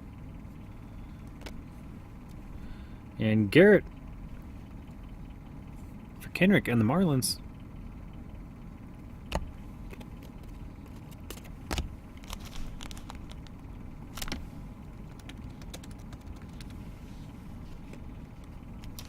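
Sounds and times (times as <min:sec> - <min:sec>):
steady low hum: 0:00.0 - 0:19.0
cards clicking and tapping: 0:09.3 - 0:14.4, 0:15.1 - 0:16.8.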